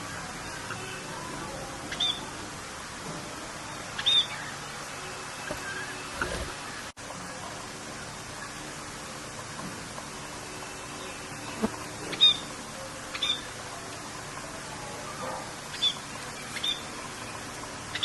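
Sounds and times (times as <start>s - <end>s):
rain hiss: 0.0s - 18.0s
high bird chirps: 4.0s - 4.6s, 13.1s - 13.5s, 15.7s - 17.0s.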